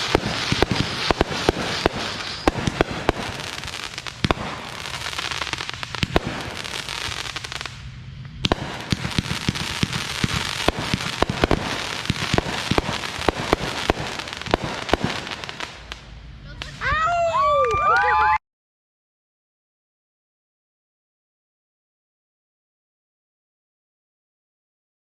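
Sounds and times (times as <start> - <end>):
fireworks cracking: 0.0 - 18.4.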